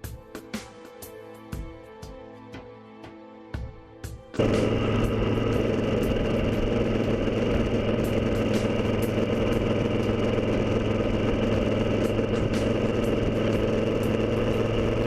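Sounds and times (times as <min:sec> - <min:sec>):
motorcycle engine running steadily: 0:04.4 - 0:15.0.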